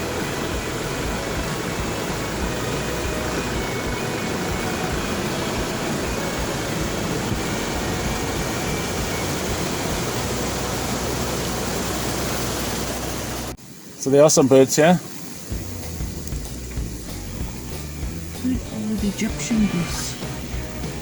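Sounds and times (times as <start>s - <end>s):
vehicle road and wind noise: 0.0s - 13.5s.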